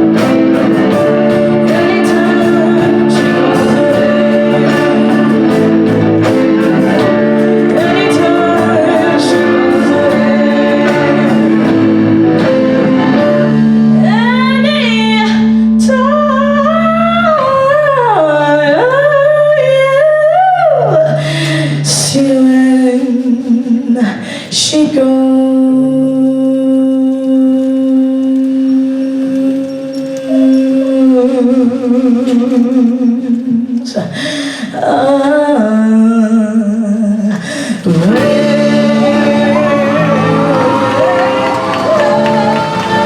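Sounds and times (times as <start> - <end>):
live band playing: 0.0 - 15.6, 37.8 - 43.0
person singing: 0.0 - 43.0.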